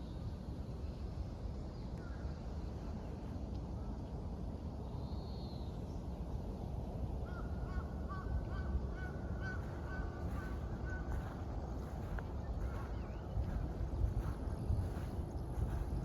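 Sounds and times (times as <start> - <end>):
steady low rumble: 7.9 - 16.0.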